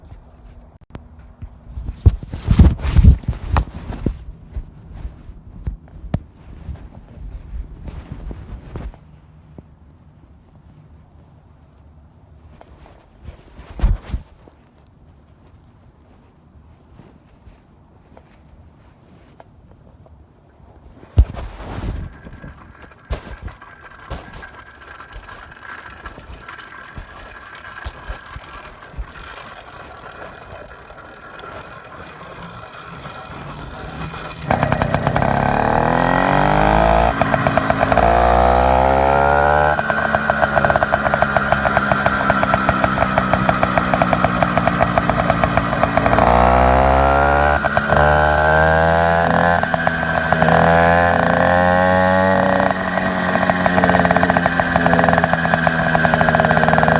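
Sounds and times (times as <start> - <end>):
light clicking and rattling: 21.2 - 35.2
small engine revving: 21.2 - 56.9.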